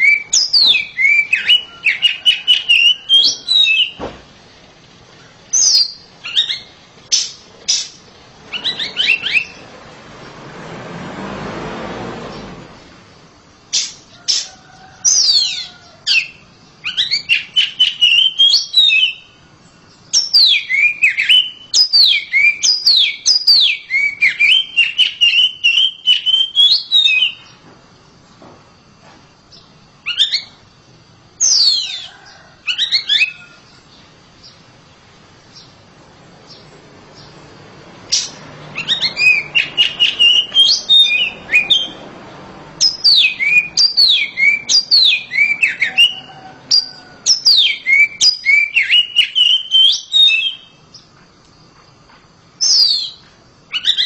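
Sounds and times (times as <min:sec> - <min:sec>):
bird singing whistled notes: 0:00.0 - 0:04.1, 0:05.5 - 0:09.6, 0:15.1 - 0:27.6, 0:29.5 - 0:30.6, 0:31.4 - 0:33.6, 0:38.1 - 0:42.0, 0:42.8 - 0:51.1, 0:52.6 - 0:54.0.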